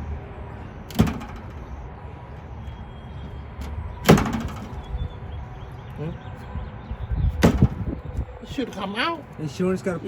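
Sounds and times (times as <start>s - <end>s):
sharp knocks: 0.9s - 1.7s.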